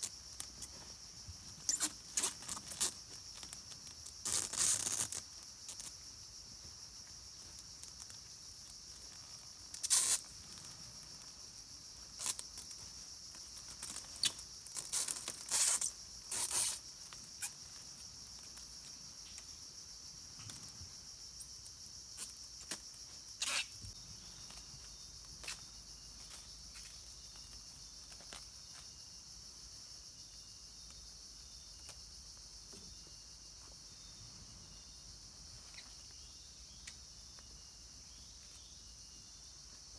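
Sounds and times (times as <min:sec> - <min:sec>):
rustling and scraping noises: 0:00.0 - 0:06.0, 0:08.9 - 0:19.5
high-pitched insect chorus: 0:00.0 - 0:39.9.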